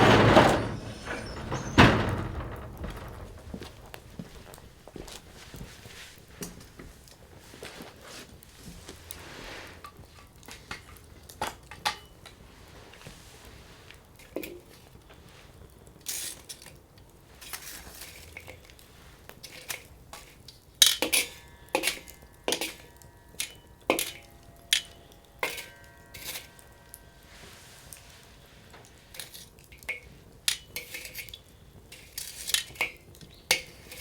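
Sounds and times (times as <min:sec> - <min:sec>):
sharp clicks and knocks: 0:00.0 - 0:04.4.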